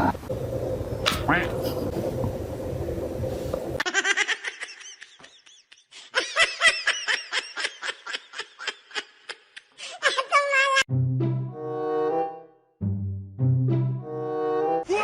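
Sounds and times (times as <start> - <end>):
high-pitched laughter: 3.8 - 10.8.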